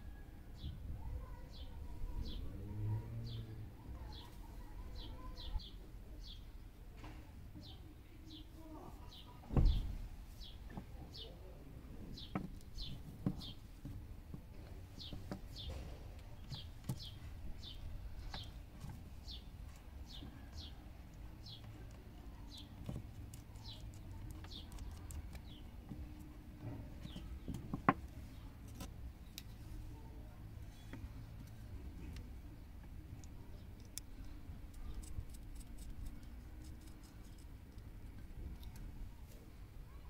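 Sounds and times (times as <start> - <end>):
bird chirping: 7.6 - 13.6, 15.0 - 18.6.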